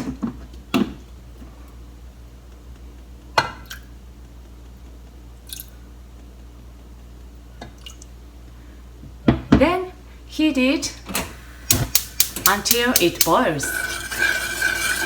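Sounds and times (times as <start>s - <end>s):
steady low hum: 0.0s - 15.0s
metal clank: 11.7s - 15.0s.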